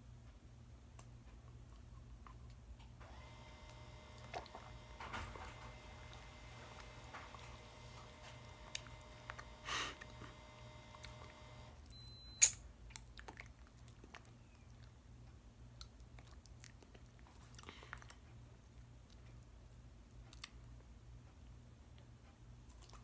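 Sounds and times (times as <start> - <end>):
short breath: 9.5 - 10.4
chewing and mouth clicks: 12.4 - 20.8, 22.0 - 23.0.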